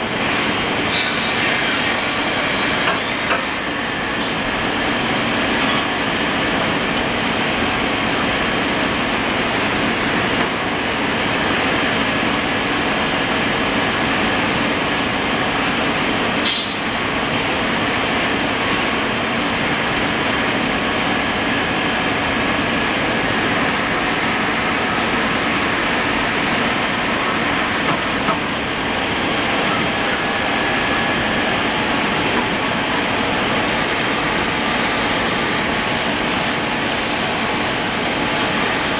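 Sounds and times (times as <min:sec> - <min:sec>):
lathe machine running: 0:20.9 - 0:38.9.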